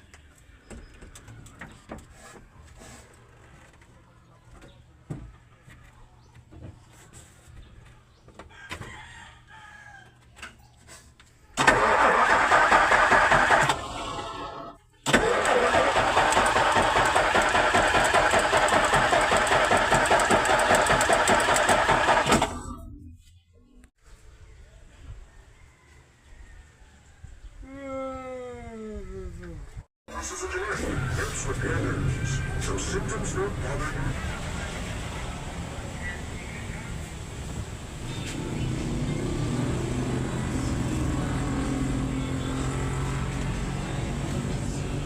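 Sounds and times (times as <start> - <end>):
diesel engine cranking with starter: 11.6 - 22.8, 30.1 - 34.0.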